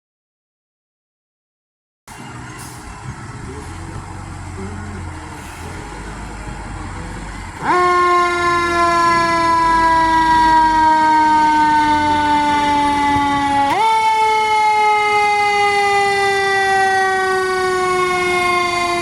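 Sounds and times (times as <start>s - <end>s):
fire engine rumbling: 2.1s - 19.0s
siren wailing: 7.5s - 19.0s.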